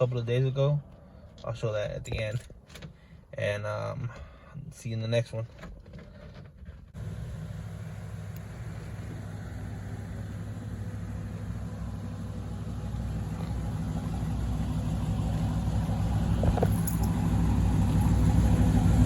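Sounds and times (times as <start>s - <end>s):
car engine idling: 6.9s - 19.0s.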